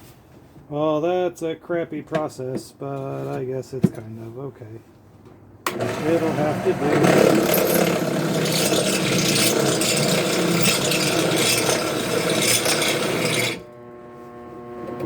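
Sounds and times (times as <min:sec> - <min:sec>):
power drill boring through metal: 0:05.7 - 0:13.7
drill motor humming: 0:05.7 - 0:14.0.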